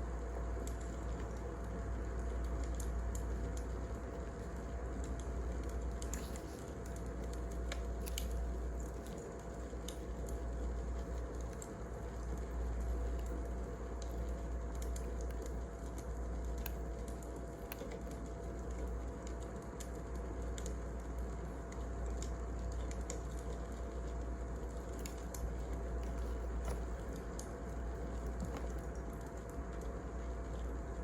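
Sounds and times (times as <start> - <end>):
wood fire crackling: 0.1 - 31.0.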